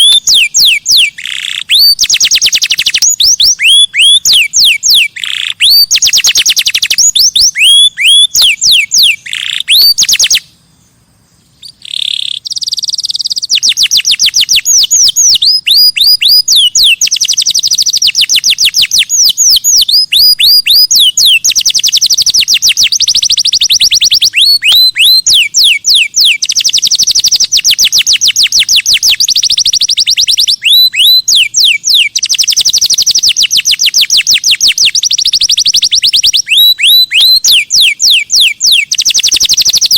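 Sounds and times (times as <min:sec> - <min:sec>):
songbird whistling: 0:00.0 - 0:39.9.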